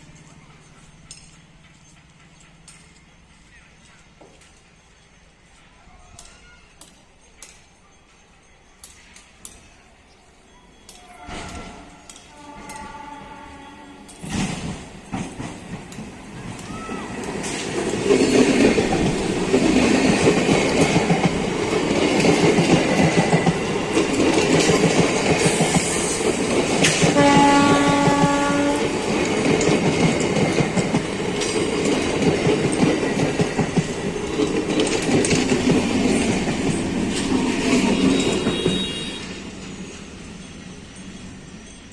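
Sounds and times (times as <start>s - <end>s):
train wheels clattering on rails: 0.0s - 10.1s, 10.8s - 41.9s
train horn blast: 11.0s - 14.3s, 27.0s - 29.1s, 37.8s - 39.5s.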